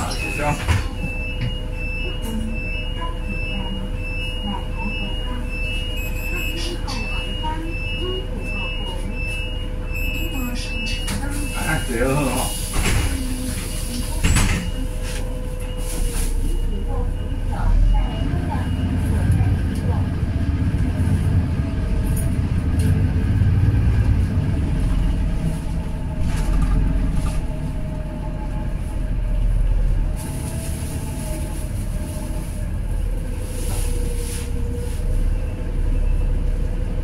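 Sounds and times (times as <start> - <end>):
bus engine drone with whine: 0.0 - 37.0.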